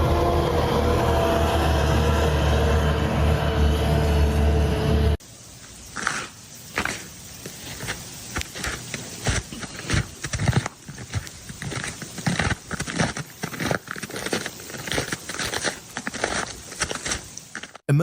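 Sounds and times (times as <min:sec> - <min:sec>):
ice cracking and clicking: 0:06.8 - 0:17.8.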